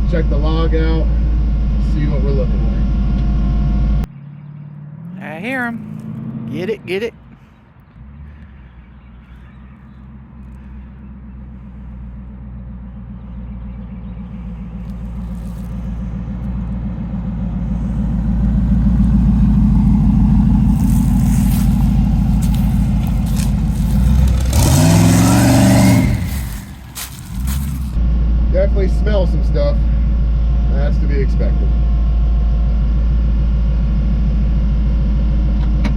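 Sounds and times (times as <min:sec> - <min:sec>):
car engine revving: 0:02.8 - 0:28.0.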